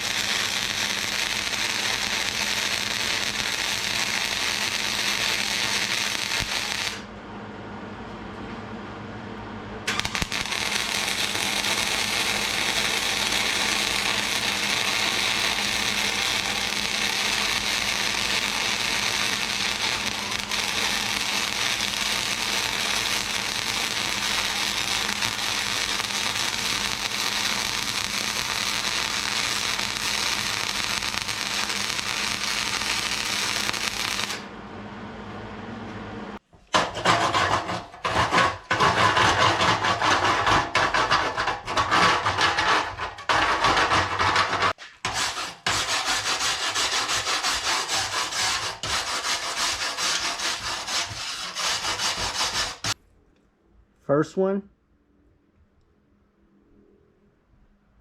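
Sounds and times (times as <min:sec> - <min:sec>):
welding arc crackling: 0:00.0 - 0:07.1, 0:09.9 - 0:34.5, 0:45.8 - 0:53.0.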